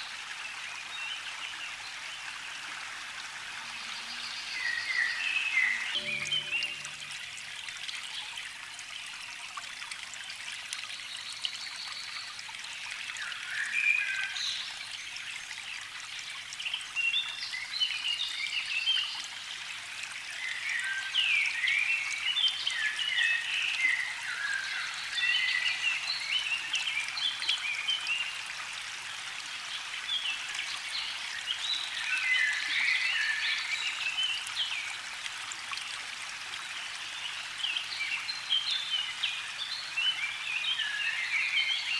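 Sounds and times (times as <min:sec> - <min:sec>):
songbirds singing: 0:03.7 - 0:07.1.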